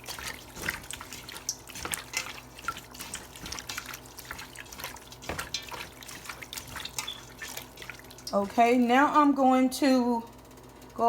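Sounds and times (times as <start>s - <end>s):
raw chicken squelching by hand: 0.0s - 8.6s.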